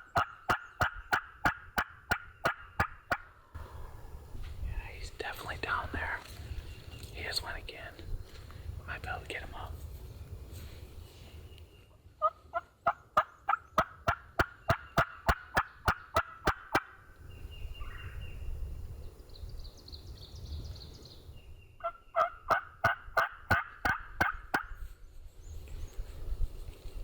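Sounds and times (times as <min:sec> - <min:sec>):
turkey call yelps: 0:00.0 - 0:03.3, 0:12.2 - 0:17.0, 0:21.8 - 0:24.7.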